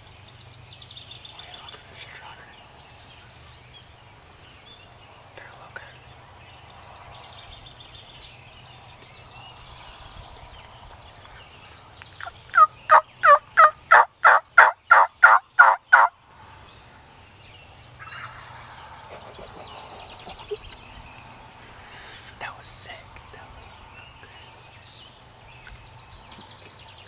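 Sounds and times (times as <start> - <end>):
wild turkey yelping: 12.2 - 16.1, 18.0 - 18.7.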